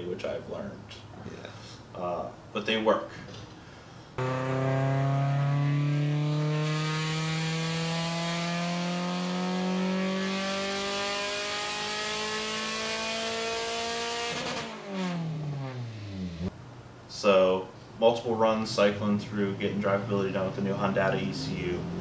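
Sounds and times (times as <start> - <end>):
car engine revving at full throttle: 4.2 - 16.5.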